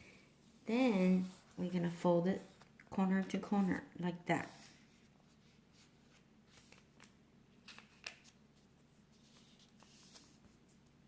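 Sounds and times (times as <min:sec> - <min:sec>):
paper rustling and folding: 0:04.4 - 0:11.0.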